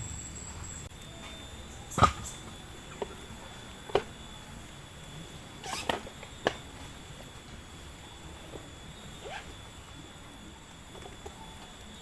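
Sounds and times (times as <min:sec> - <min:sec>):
steady background hiss: 0:00.0 - 0:12.0
faint short animal calls: 0:05.6 - 0:06.1.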